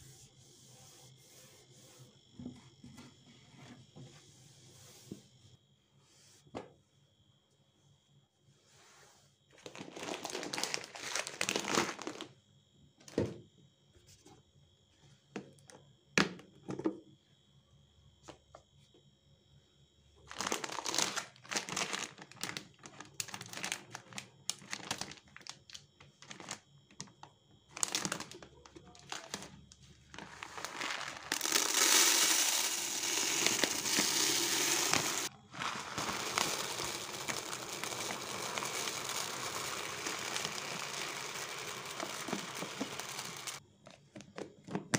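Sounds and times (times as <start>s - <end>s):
plastic bags crinkling: 9.6s - 12.3s, 20.3s - 25.5s, 27.7s - 43.6s.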